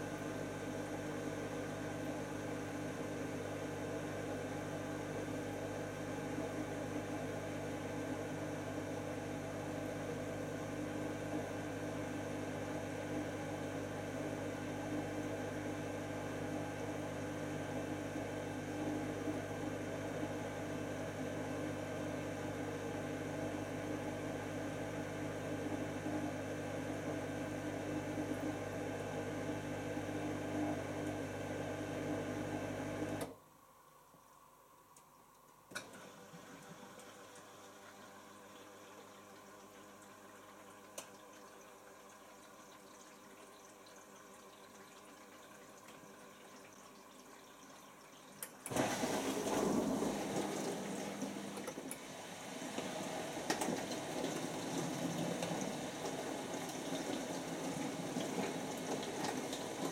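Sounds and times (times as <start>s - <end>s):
dishwasher pump humming: 35.7s - 59.9s.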